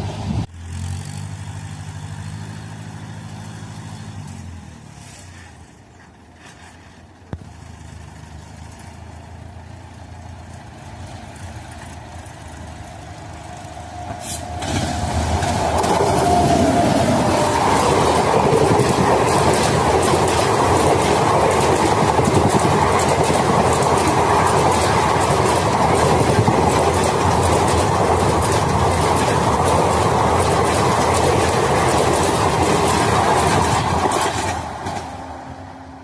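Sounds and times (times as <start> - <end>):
passenger train rushing past: 0.0 - 0.5, 10.9 - 36.0
wheels clattering over rail joints: 10.1 - 35.4.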